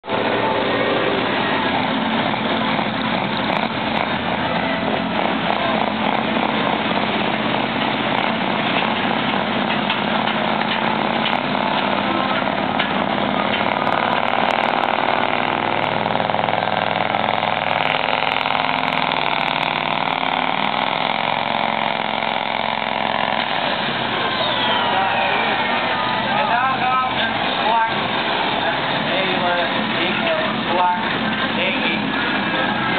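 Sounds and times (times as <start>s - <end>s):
diesel truck engine running: 0.0s - 32.9s.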